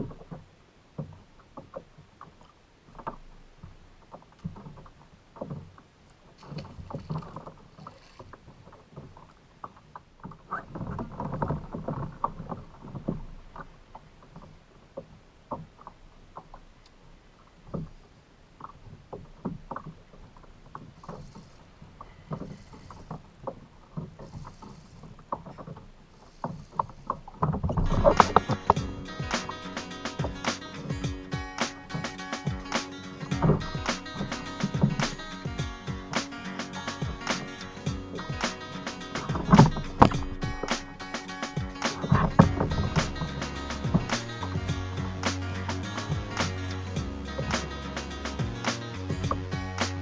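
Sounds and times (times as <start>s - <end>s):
water slapping against kayak hull: 0.0s - 16.9s, 18.6s - 46.6s
irregular knocks and clicks: 0.0s - 17.0s, 17.6s - 18.0s, 18.6s - 45.4s.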